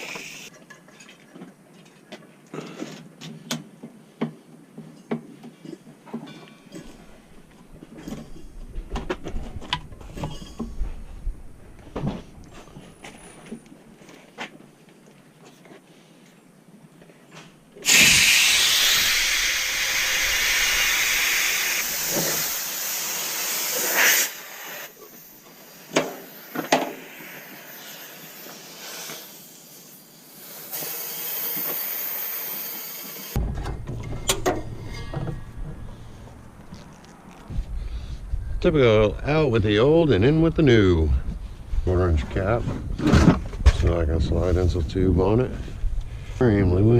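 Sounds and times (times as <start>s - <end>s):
hiss of escaping gas: 17.8s - 33.4s.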